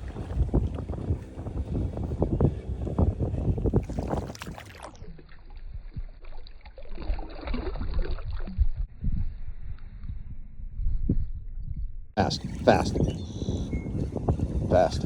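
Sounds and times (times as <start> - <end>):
small water sounds: 0.0 - 8.9
wind rumbling on microphone: 0.0 - 15.0.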